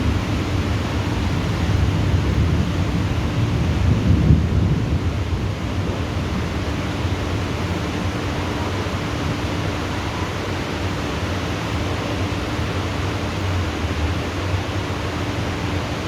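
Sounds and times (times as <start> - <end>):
thunder rumble: 0.0 - 6.7
heavy rain: 0.0 - 16.0.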